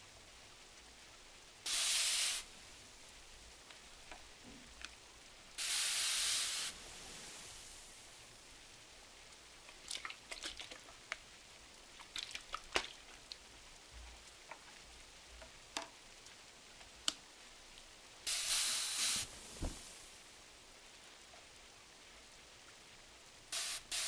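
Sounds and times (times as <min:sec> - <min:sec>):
rain hissing: 0:00.0 - 0:09.6, 0:17.5 - 0:21.2, 0:23.2 - 0:24.0
wood fire crackling and popping: 0:18.9 - 0:20.2
soft thump: 0:19.3 - 0:20.1.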